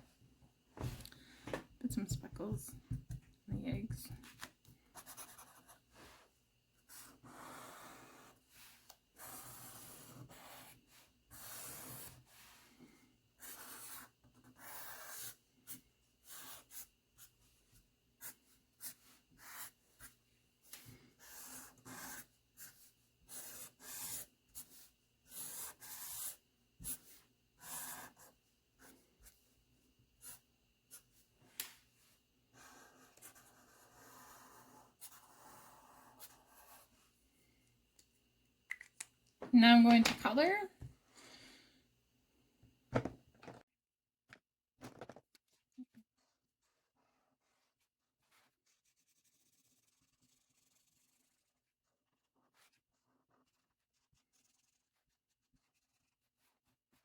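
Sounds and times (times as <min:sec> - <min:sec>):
pencil drawing strokes on paper: 0:01.8 - 0:29.5, 0:30.2 - 0:37.1, 0:46.2 - 0:57.0.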